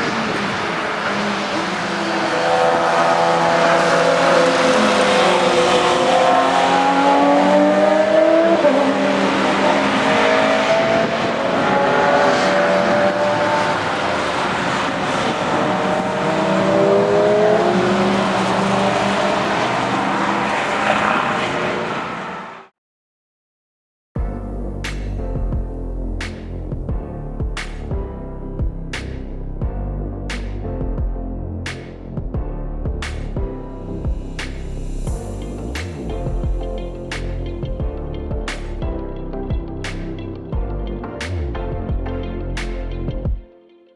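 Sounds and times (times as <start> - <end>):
tyre and road noise: 0.0 - 22.6
race car engines accelerating: 0.0 - 22.7.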